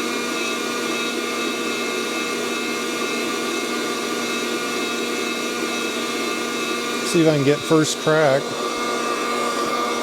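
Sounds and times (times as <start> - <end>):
coffee roaster fan blowing: 0.0 - 10.0
motor whine: 2.7 - 10.0.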